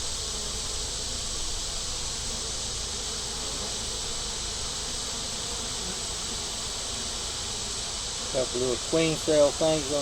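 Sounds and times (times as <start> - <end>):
bees buzzing: 2.9 - 10.0.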